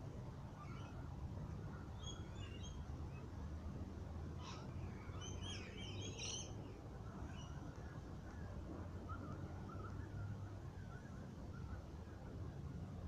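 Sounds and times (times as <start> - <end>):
low steady rumble: 0.0 - 13.0
birds chirping and trilling: 1.7 - 3.3, 4.4 - 7.8.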